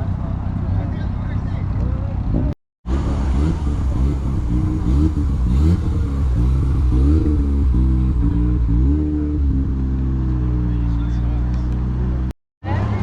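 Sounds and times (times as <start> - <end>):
car engine revving: 2.8 - 13.0.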